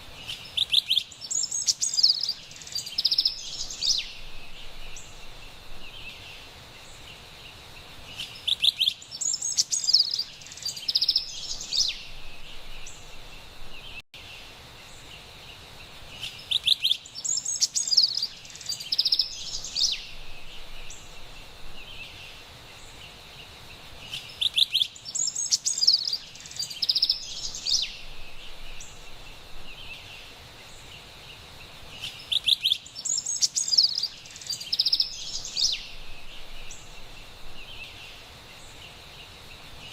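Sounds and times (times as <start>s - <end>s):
steady high hiss: 0.0s - 39.9s
wren singing rapid high notes: 24.1s - 27.9s, 32.1s - 35.9s.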